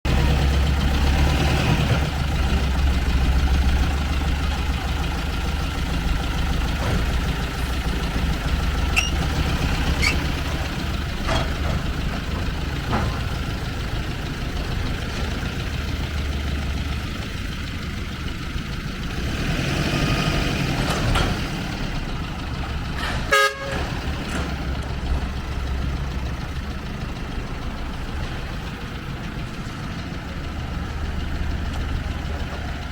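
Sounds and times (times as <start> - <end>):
truck engine rumbling: 0.0 - 32.9.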